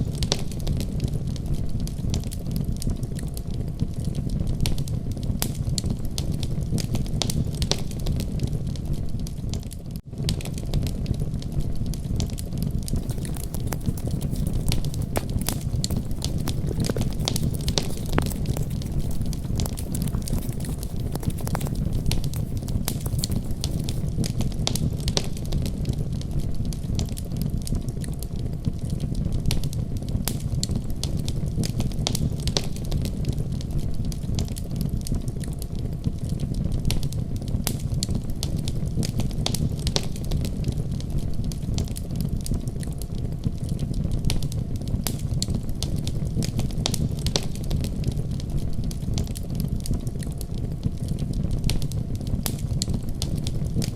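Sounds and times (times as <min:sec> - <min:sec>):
fire crackling and popping: 0:12.9 - 0:25.2.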